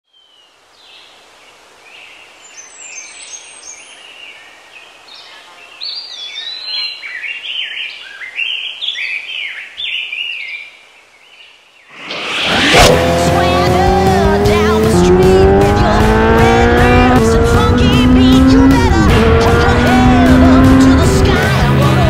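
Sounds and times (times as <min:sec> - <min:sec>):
birds singing: 0:00.1 - 0:12.0
faint outdoor background: 0:00.1 - 0:22.0.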